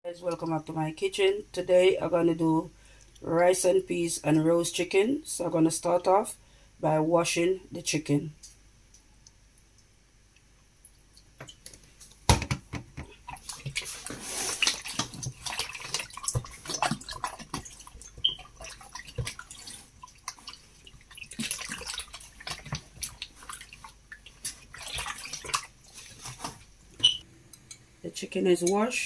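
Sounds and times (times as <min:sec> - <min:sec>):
water dripping: 0:08.4 - 0:11.9, 0:13.1 - 0:27.8
water running and splashing: 0:13.1 - 0:27.2.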